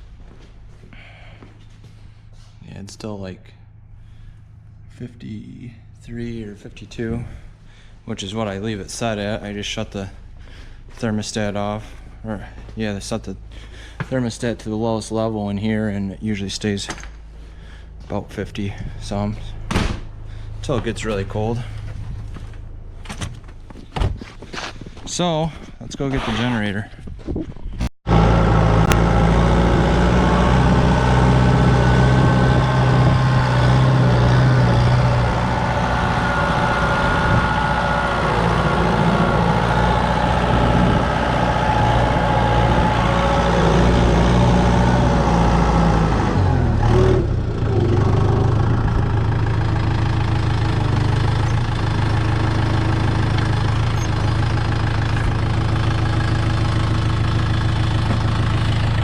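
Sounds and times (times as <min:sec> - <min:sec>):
tractor diesel engine idling: 0:03.6 - 0:23.1, 0:28.1 - 0:59.0.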